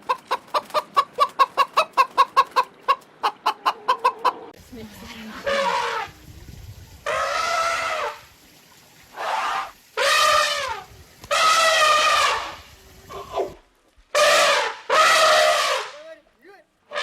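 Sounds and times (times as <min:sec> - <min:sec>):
farm animal calling: 0:05.3 - 0:06.1, 0:14.2 - 0:16.1.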